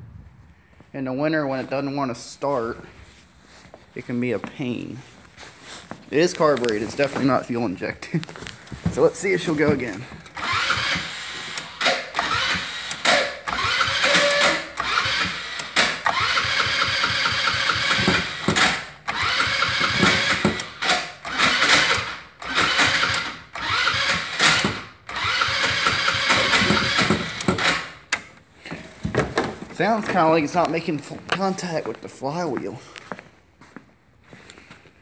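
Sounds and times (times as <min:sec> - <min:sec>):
electric starter cranking engine: 0:10.2 - 0:28.2.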